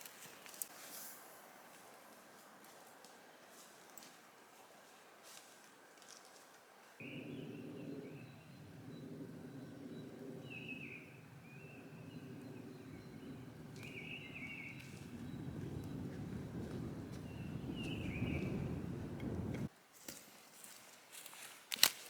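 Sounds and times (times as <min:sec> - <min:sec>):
low rushing background: 0:07.0 - 0:19.7
small bird singing: 0:07.0 - 0:19.7.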